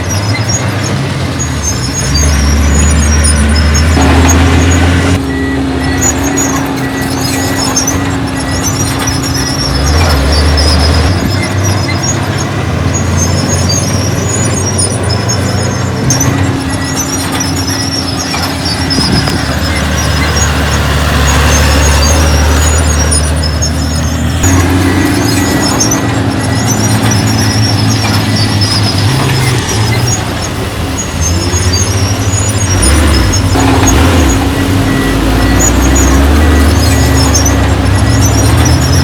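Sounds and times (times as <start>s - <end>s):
bulldozer diesel engine running: 0.0s - 39.0s
steel tracks squealing: 0.0s - 39.0s.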